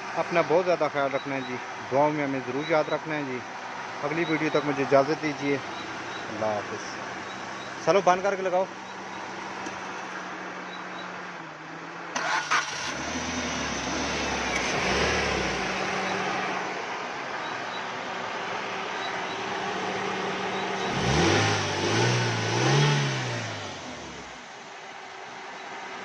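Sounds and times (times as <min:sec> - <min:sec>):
car engine starting and idling: 0:00.0 - 0:24.6
car engine revving: 0:12.1 - 0:24.5.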